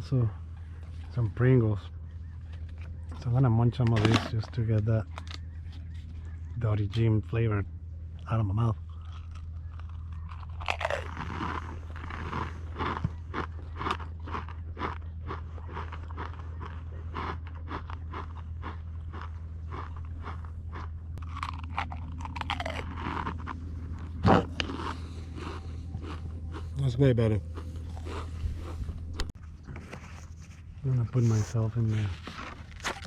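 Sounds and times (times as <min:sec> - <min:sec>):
low hum: 0:00.0 - 0:33.0
potato chips being chewed: 0:05.0 - 0:06.3, 0:08.2 - 0:29.4, 0:32.2 - 0:33.0.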